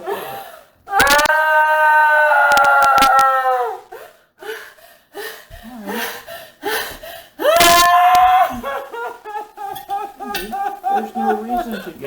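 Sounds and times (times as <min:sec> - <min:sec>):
woman screaming: 0:00.9 - 0:03.9, 0:07.4 - 0:08.7
sharp clicks: 0:01.0 - 0:01.3, 0:02.5 - 0:03.3, 0:07.6 - 0:08.3
woman gasping and sobbing: 0:03.8 - 0:08.8.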